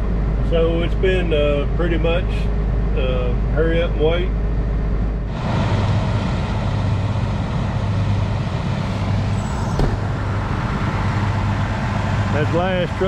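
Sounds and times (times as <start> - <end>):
diesel engine humming: 7.1 - 13.0.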